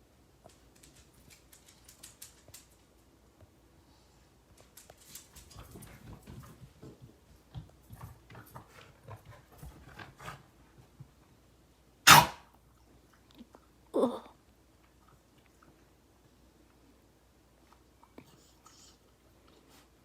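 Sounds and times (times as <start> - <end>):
puppy loud hack: 12.1 - 12.5.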